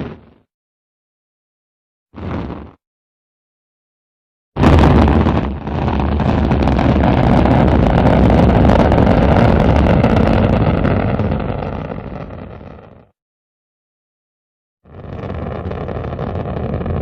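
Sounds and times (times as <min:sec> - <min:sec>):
rocket launch roar: 0:04.6 - 0:13.1, 0:14.9 - 0:17.0.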